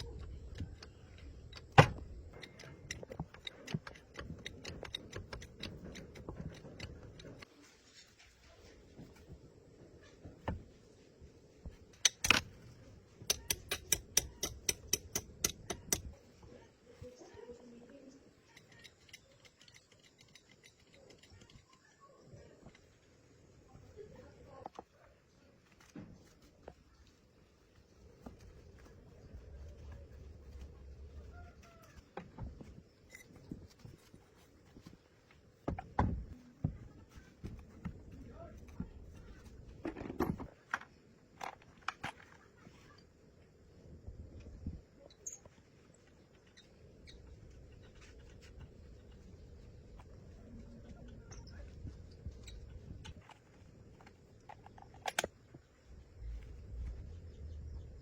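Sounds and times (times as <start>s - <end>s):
sharp metallic clicks: 0.0s - 7.5s, 11.9s - 16.2s, 18.3s - 22.0s
knocks and clicks of handling: 0.0s - 7.6s, 11.5s - 16.5s, 28.1s - 42.6s, 46.3s - 55.8s.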